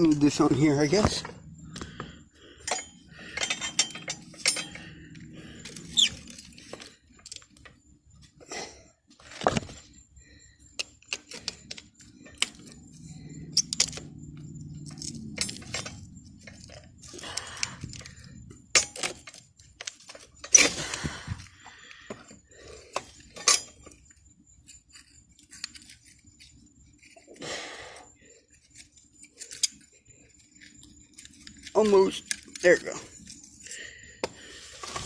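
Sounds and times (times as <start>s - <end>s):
low hum: 0.0s - 27.3s
hand tools clinking on metal: 2.6s - 7.4s, 23.0s - 24.0s, 31.3s - 33.8s.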